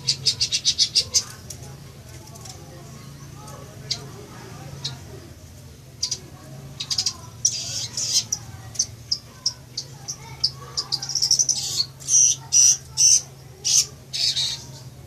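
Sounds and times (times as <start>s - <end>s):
loud bird calls: 0.0s - 1.5s, 3.0s - 15.0s
shrike singing high chattering: 6.0s - 15.0s.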